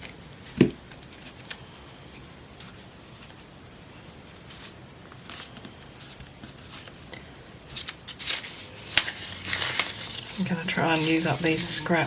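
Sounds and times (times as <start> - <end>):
paper rustling and crinkling: 4.4 - 12.0.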